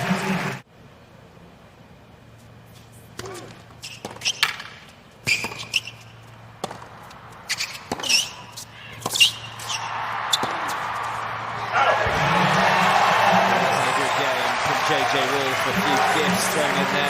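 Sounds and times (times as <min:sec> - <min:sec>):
sneakers squeaking: 0:02.4 - 0:14.2
ball bouncing: 0:06.6 - 0:08.3
tennis ball racket strikes: 0:06.6 - 0:11.1.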